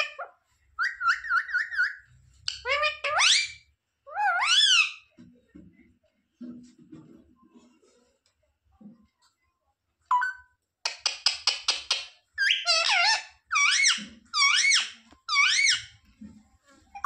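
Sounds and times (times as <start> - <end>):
parrot chirping and squawking: 0.0 - 5.1, 11.0 - 16.0.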